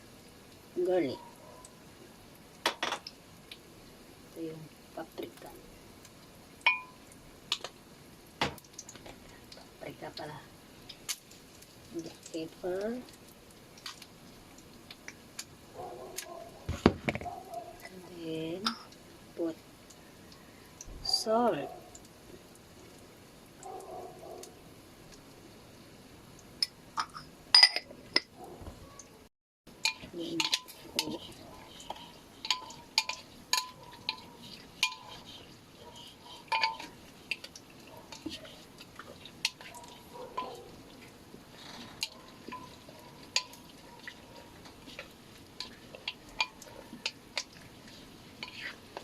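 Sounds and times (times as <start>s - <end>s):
kitchenware clinking: 2.6s - 3.1s, 6.6s - 7.0s, 26.6s - 28.3s, 29.8s - 37.5s, 39.4s - 40.7s, 41.8s - 47.5s.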